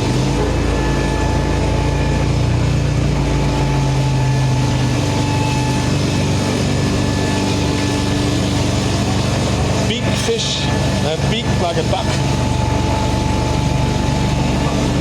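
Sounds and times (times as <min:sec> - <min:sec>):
machine drone: 0:00.0 - 0:15.0.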